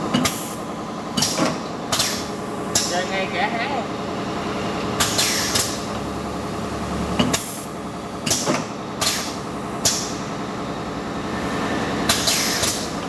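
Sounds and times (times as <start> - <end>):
drilling machine motor hum: 0.0 - 13.0
machine clacks and hisses: 0.1 - 3.3, 4.7 - 6.1, 6.9 - 13.0.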